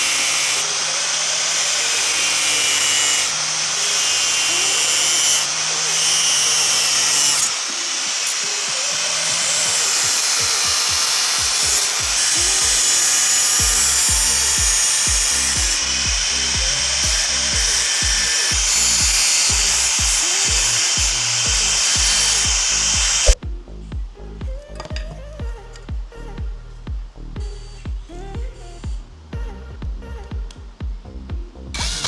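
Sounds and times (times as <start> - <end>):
power tool running on metal: 0.0 - 23.4, 31.8 - 32.0
background music with steady beat: 0.0 - 32.0.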